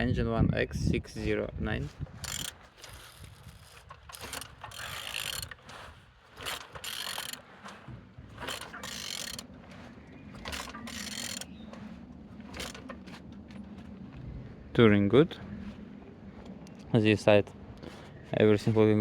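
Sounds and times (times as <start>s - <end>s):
wrench ratcheting engine over: 2.2s - 5.7s, 6.4s - 7.5s, 8.4s - 9.5s, 10.4s - 11.6s, 12.5s - 13.1s.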